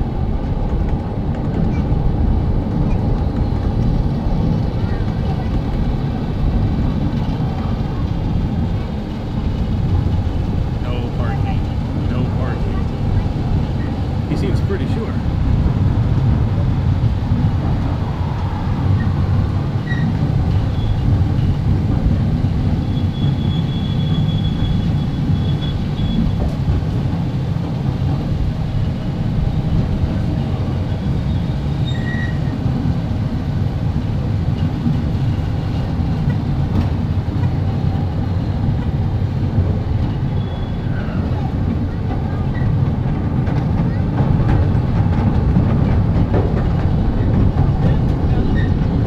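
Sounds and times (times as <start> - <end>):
train wheels rumbling on rails: 0.0 - 49.0.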